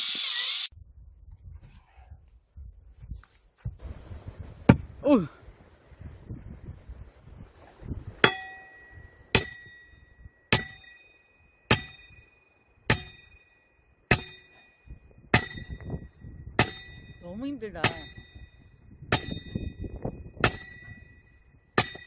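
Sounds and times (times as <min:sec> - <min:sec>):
hammer striking steel wedge: 0:08.2 - 0:14.8, 0:15.4 - 0:16.0, 0:16.6 - 0:17.2, 0:17.8 - 0:19.8, 0:20.4 - 0:22.0.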